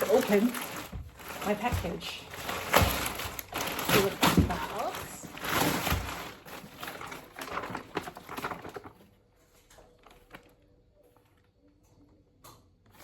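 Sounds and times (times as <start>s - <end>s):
package wrapping tearing and rustling: 0.0s - 9.1s.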